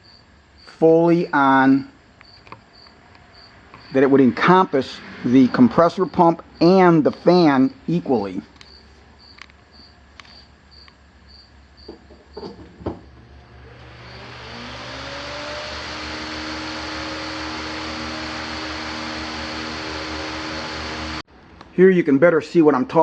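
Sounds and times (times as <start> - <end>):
floor fan motor hum: 12.8 - 21.2.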